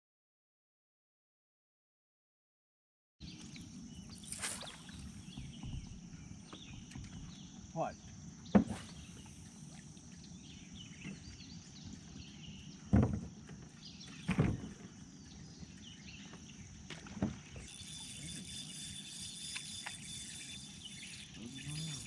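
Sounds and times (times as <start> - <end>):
steady high whine: 8.7 - 11.7, 17.5 - 22.0
paddle board knocks and splashes: 12.9 - 13.4.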